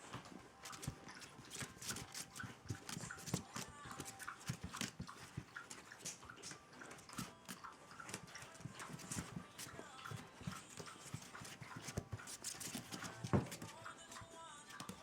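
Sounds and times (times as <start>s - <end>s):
puppy paws tapping and scuffling: 0.0s - 15.0s.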